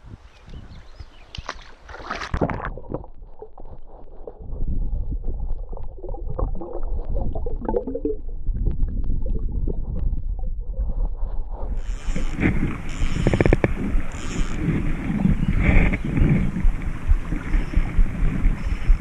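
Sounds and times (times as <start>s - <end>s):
stream water splashing and gurgling: 1.2s - 4.0s, 11.8s - 19.0s
small clicks of water and handling: 1.3s - 3.1s, 11.8s - 14.6s
low rumble: 2.7s - 19.0s.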